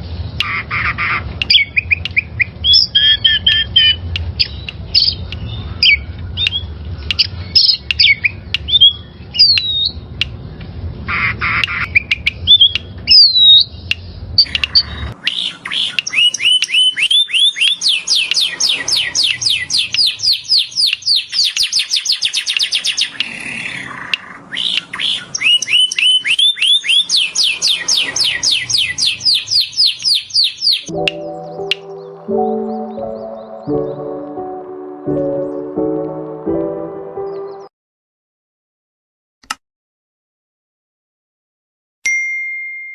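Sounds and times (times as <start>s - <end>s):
birds squawking and chirping: 0.4s - 10.0s, 10.6s - 36.4s
downward-sweeping bird whistles: 14.7s - 24.0s, 24.6s - 30.9s.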